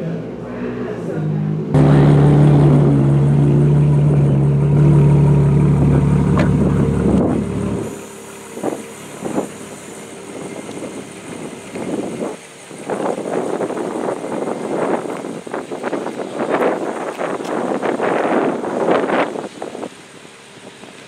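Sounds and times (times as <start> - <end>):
car engine idling: 1.1 - 21.0
wind on microphone: 5.8 - 8.0, 8.6 - 9.6, 10.2 - 20.0.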